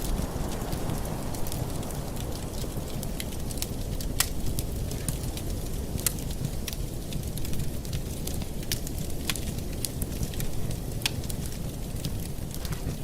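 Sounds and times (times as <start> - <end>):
fire pops and crackles: 0.0 - 13.0
low rumble of flames: 0.0 - 13.0.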